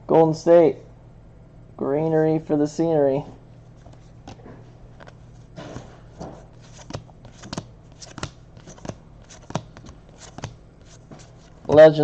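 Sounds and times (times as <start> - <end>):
cards flicking and sliding: 5.0 - 12.0.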